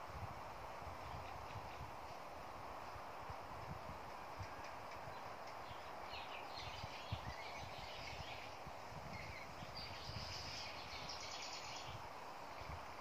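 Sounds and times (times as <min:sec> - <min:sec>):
steady background hiss: 0:00.0 - 0:13.0
birds chirping with trills: 0:04.6 - 0:12.0.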